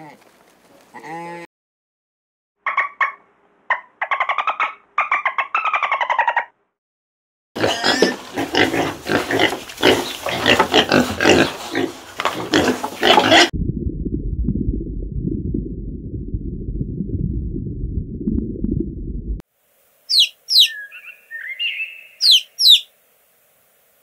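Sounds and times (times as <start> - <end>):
piglets grunting and squealing: 0.9 - 1.5, 7.6 - 13.5
muffled low rumble: 13.6 - 19.4.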